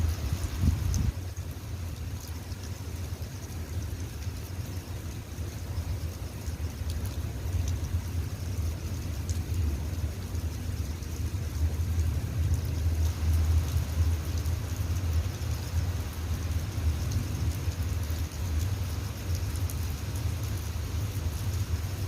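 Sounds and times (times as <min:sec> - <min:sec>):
raindrops ticking: 0:00.0 - 0:22.0
steady rain: 0:00.0 - 0:22.0.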